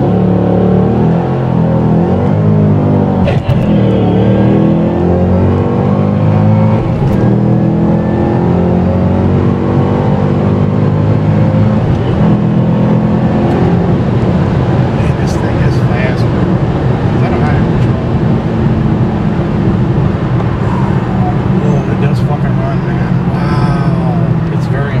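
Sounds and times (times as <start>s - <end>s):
car engine accelerating hard: 0.0s - 25.0s.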